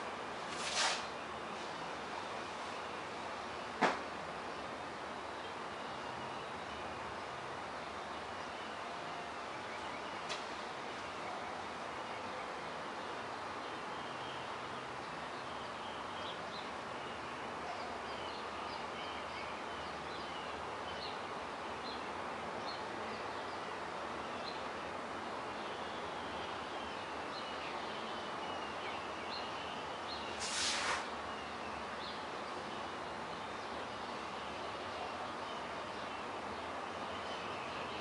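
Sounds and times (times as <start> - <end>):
background hiss: 0.0 - 38.0
short burst of noise: 0.5 - 1.2, 30.3 - 31.1
birds chirping: 25.4 - 38.0.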